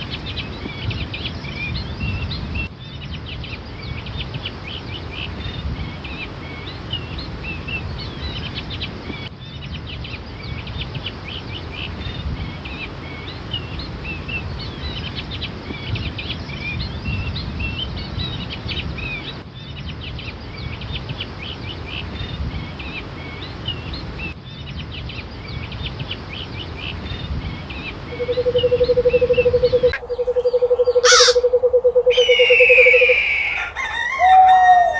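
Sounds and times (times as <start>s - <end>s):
small birds chirping: 0.0s - 33.8s
steady low rumble: 27.2s - 32.2s.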